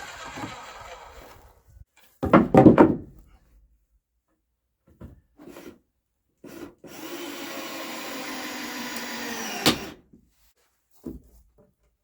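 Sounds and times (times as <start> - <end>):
power saw cutting wood: 0.0 - 1.6, 6.9 - 10.0.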